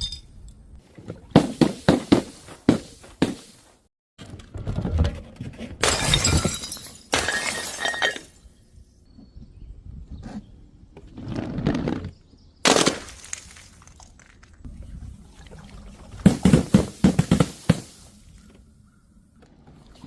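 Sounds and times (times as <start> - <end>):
glass bottles smashing and crunching: 5.8 - 8.5, 12.7 - 14.1, 16.2 - 18.1.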